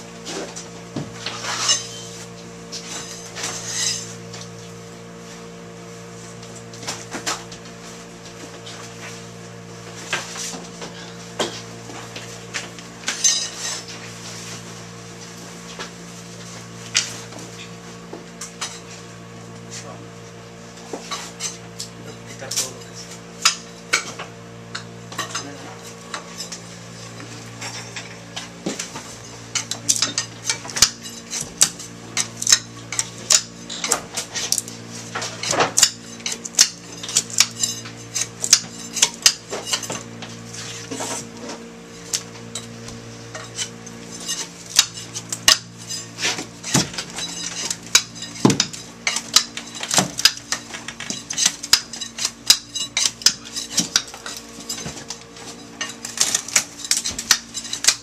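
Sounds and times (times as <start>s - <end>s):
steady mechanical hum: 0.0s - 58.0s.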